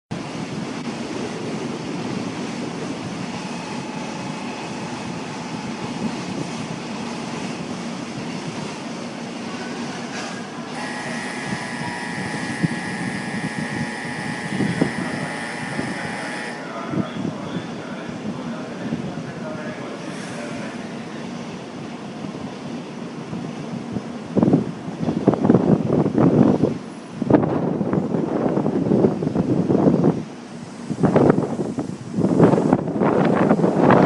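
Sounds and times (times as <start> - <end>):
train rushing rumble: 0.1 - 34.0
high multi-tone whine: 1.3 - 17.3.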